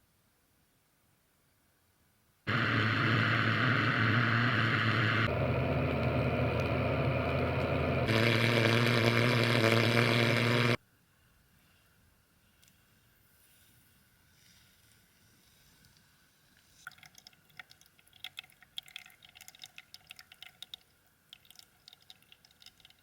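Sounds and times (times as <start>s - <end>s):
vehicle engine and road noise: 2.5s - 10.8s.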